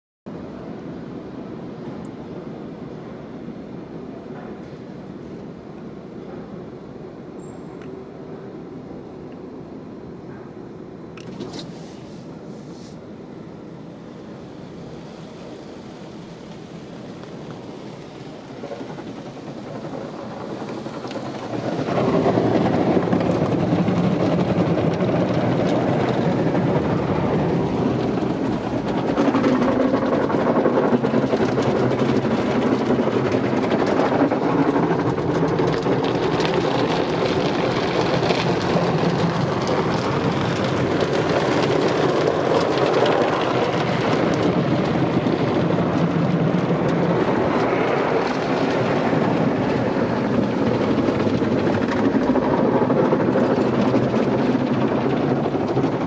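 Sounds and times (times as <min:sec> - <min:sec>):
car wash water spray: 0:11.2 - 0:52.5.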